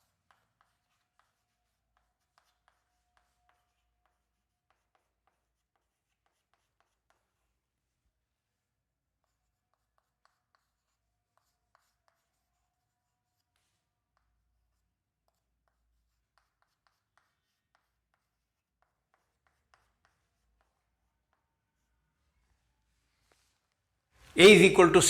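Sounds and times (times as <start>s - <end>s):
writing taps and strokes: 0.0s - 23.9s.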